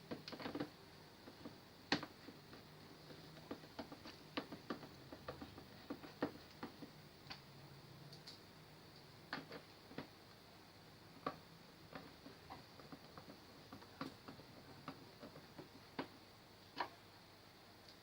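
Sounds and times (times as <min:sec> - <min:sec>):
light clicks and taps of tools: 0:08.1 - 0:08.4.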